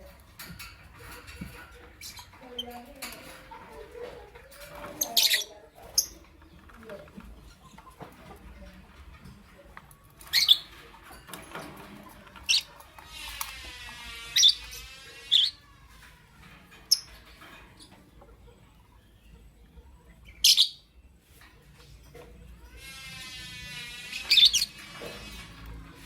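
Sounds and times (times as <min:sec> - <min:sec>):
lovebird calls: 0:20.3 - 0:20.8.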